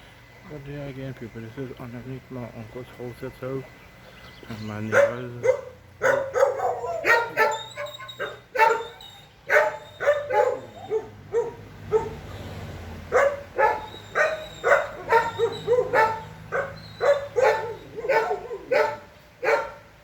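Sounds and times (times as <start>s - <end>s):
dog barking: 4.9s - 12.3s, 13.1s - 19.9s.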